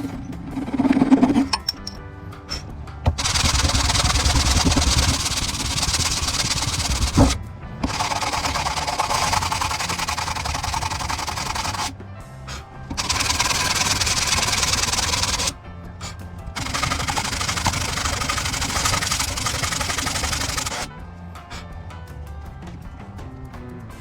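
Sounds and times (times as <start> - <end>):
background music: 0.0 - 24.0
woodworking power tool running: 3.1 - 11.9, 12.9 - 15.6, 16.6 - 20.9.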